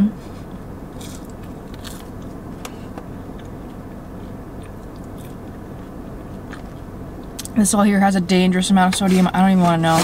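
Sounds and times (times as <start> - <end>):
steady low hum: 0.0 - 10.0
person chewing wetly: 3.1 - 7.5.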